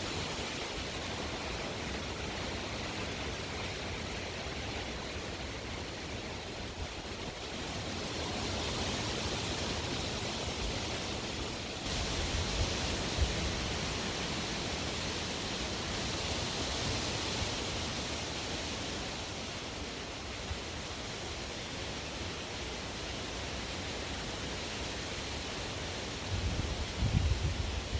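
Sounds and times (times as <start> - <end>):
strong wind blowing: 26.2 - 27.9.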